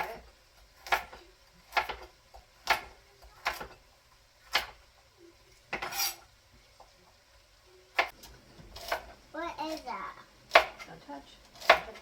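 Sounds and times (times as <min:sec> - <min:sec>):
knife chopping on cutting board: 0:00.0 - 0:03.8, 0:04.4 - 0:04.8, 0:05.7 - 0:06.2, 0:08.0 - 0:09.1, 0:10.5 - 0:10.9, 0:11.5 - 0:12.0.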